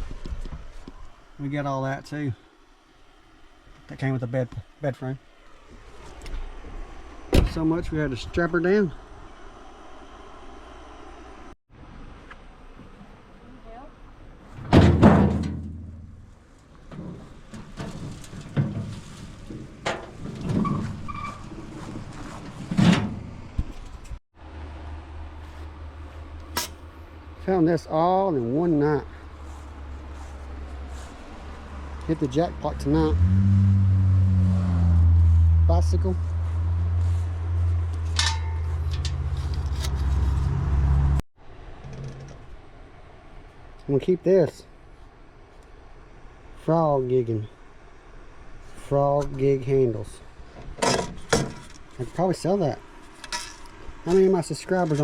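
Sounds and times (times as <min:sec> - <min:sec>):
vehicle engine running: 0:24.4 - 0:41.2.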